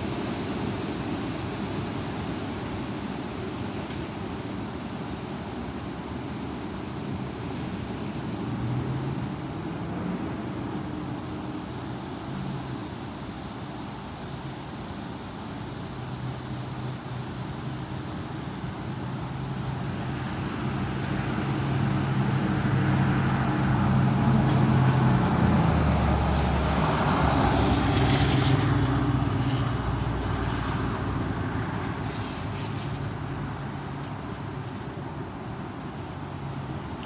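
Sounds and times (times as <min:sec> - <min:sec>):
vehicle driving past: 0:19.4 - 0:34.2.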